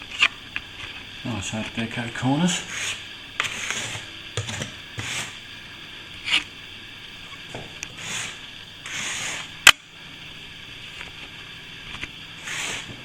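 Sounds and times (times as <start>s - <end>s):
plastering tool scraping plaster: 2.5s - 5.4s, 7.9s - 9.6s, 12.4s - 13.0s.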